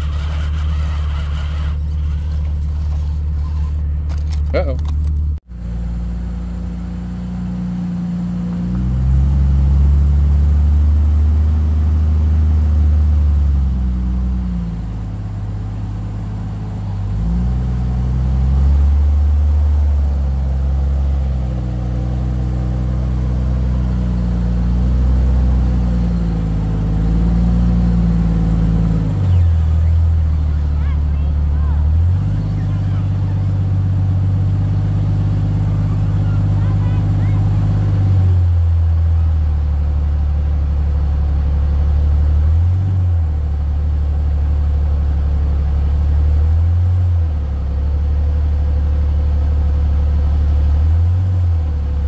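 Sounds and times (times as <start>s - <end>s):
off-road vehicle engine revving: 0.0s - 52.0s.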